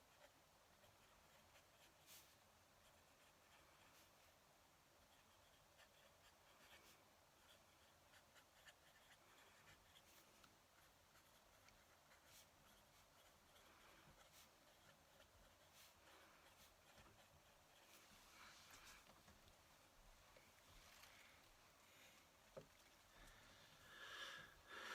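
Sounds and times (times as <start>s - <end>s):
pen nib scratching on paper: 0.0s - 19.2s.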